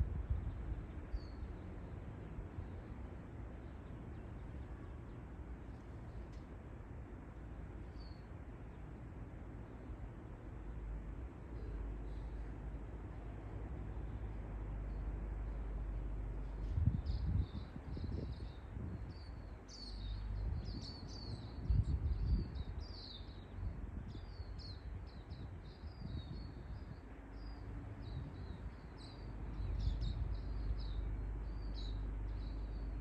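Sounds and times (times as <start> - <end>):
small birds chirping: 0.4 - 2.0, 7.8 - 8.3, 16.5 - 33.0.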